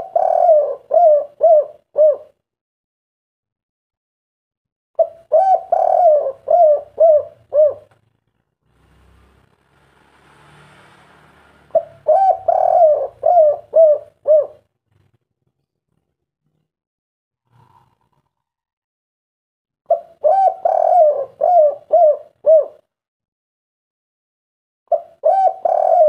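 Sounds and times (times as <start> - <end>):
dove cooing: 0.0 - 2.4, 5.0 - 8.0, 11.7 - 14.7, 19.9 - 22.9, 24.9 - 26.0.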